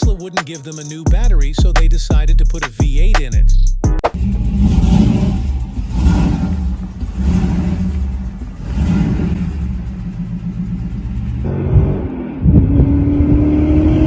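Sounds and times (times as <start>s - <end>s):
car engine revving: 4.1s - 14.0s.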